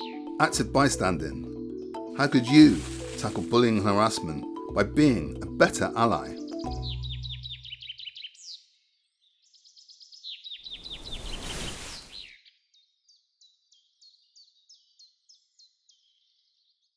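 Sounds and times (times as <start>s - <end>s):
birds chirping: 0.0s - 8.6s, 10.3s - 12.4s
burst of rushing noise: 10.7s - 12.3s.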